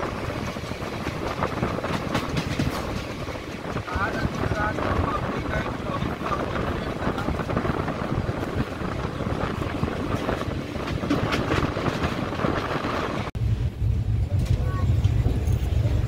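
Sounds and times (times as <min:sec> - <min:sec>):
train wheels rumbling on rails: 0:00.0 - 0:16.0
clatters over track joints: 0:00.3 - 0:08.7.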